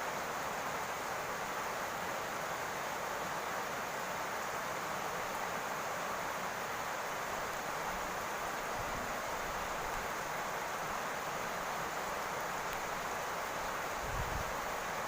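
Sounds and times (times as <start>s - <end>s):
rain on a roof: 0.0s - 15.0s.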